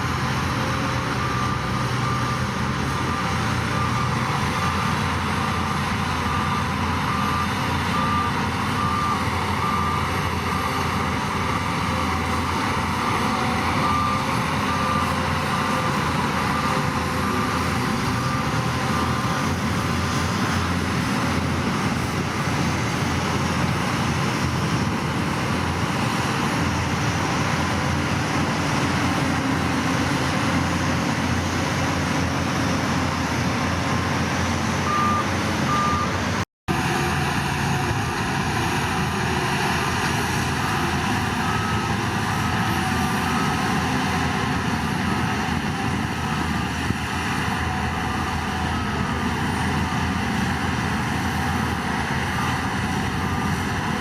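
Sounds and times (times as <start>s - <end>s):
diesel machinery running: 0.0s - 54.0s
reversing alarm beeping: 1.0s - 20.1s, 34.8s - 36.2s, 40.4s - 43.9s, 47.6s - 49.3s.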